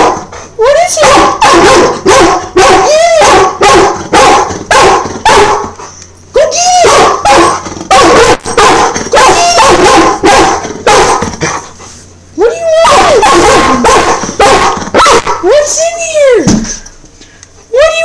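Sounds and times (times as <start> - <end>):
dog barking: 0.0 - 0.3, 0.9 - 5.8, 6.5 - 11.6, 12.4 - 15.4
dog yelping: 0.0 - 5.8, 6.4 - 11.6, 12.4 - 15.8.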